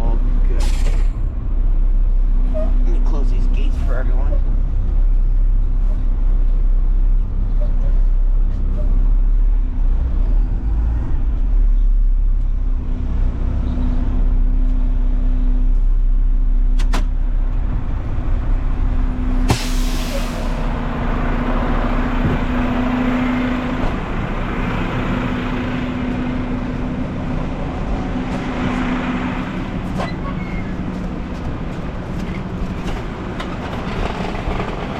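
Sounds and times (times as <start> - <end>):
diesel engine humming: 0.0 - 34.9
air hiss burst: 19.5 - 20.6.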